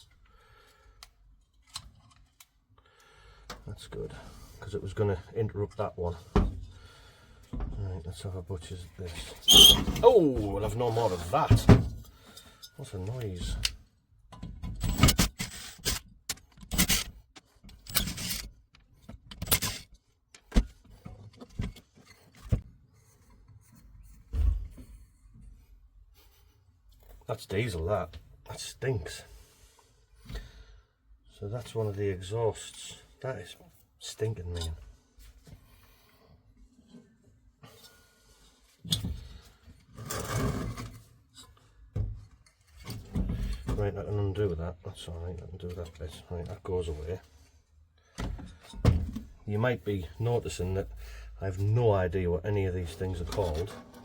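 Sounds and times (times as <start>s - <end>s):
metal parts rustling and clinking: 17.7s - 18.5s.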